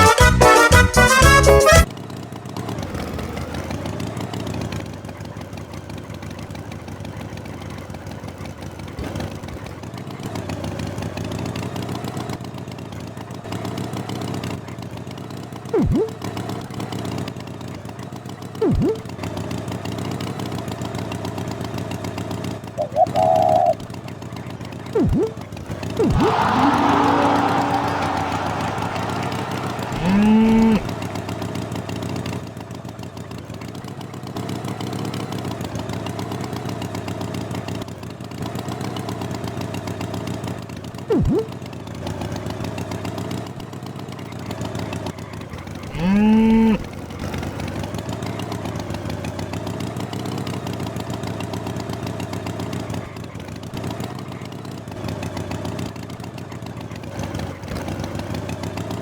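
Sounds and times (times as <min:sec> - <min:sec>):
engine-like drone: 0:15.6 - 0:16.9, 0:18.4 - 0:19.7, 0:22.6 - 0:32.3, 0:41.0 - 0:42.6, 0:45.4 - 0:47.9
cartoon cow mooing: 0:15.8 - 0:16.1, 0:22.8 - 0:23.8, 0:26.0 - 0:30.9, 0:45.9 - 0:46.8.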